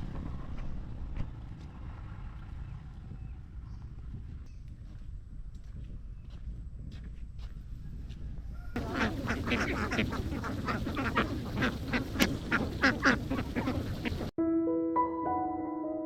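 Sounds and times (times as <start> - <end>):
flock of ducks quacking: 8.6 - 14.3.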